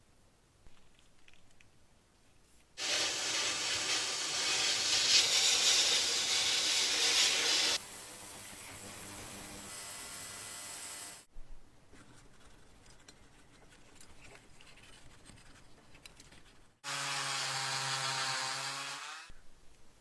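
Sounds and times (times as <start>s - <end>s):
small power tool humming: 2.8s - 11.3s, 16.8s - 19.3s
steady hiss: 2.8s - 11.3s.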